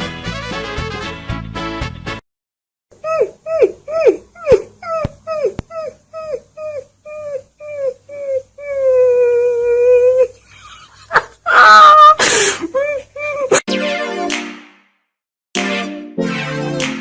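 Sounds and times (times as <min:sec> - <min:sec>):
dog crying: 0:03.0 - 0:10.4, 0:11.2 - 0:13.6.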